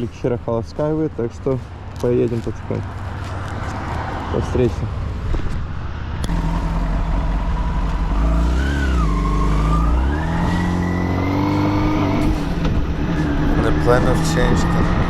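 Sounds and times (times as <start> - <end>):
motorcycle engine accelerating: 6.2 - 15.0.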